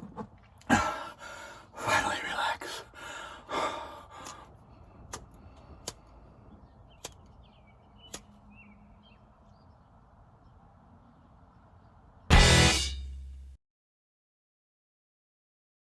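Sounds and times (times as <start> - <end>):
deep breath out: 0.7 - 6.4
sharp clicks: 7.0 - 7.4.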